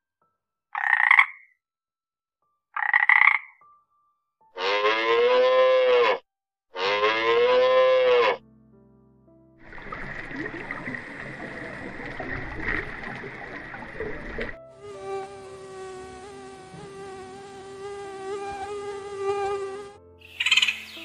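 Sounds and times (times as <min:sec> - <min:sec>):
mosquito whine: 0:14.8 - 0:20.8
loud bird call: 0:20.2 - 0:21.0.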